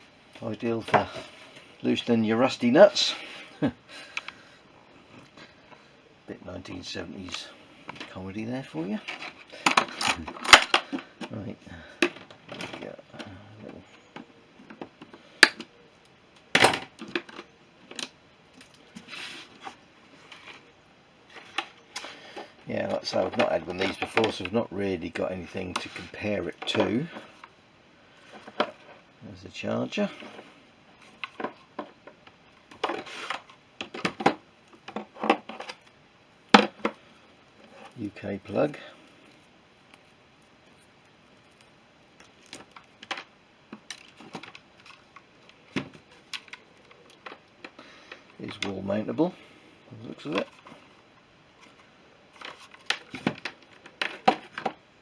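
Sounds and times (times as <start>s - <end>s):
tool handling clicks and knocks: 9.0s - 11.3s, 21.4s - 27.6s, 31.0s - 36.0s, 52.4s - 54.8s.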